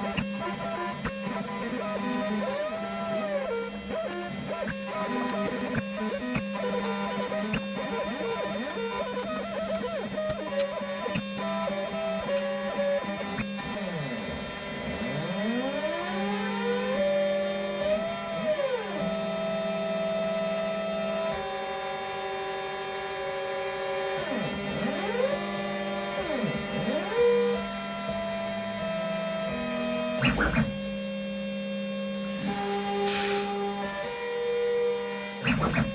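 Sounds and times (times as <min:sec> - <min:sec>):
stepper motors whining: 0:24.7 - 0:35.9.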